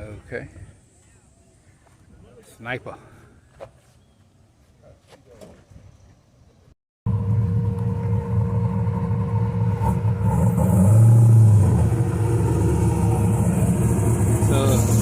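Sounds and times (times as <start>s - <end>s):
car engine exhaust rumble: 7.1s - 15.0s.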